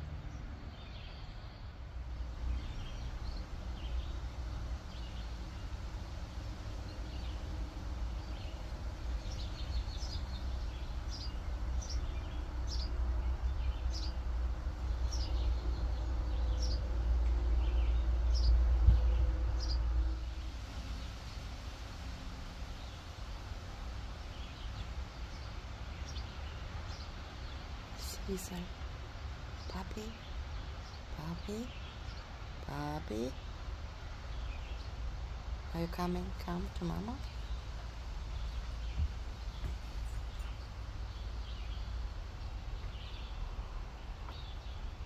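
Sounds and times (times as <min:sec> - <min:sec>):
bird chirping: 0:00.0 - 0:01.8, 0:02.4 - 0:05.8, 0:08.2 - 0:14.3, 0:14.9 - 0:20.0, 0:24.2 - 0:28.8, 0:35.7 - 0:45.0
steady low rumble: 0:00.0 - 0:45.0.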